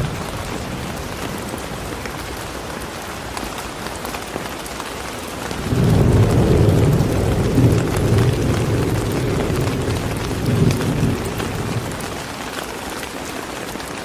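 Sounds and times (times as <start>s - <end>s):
thunder rumbling: 0.0s - 2.7s, 5.5s - 12.5s
steady rain falling: 0.0s - 14.0s.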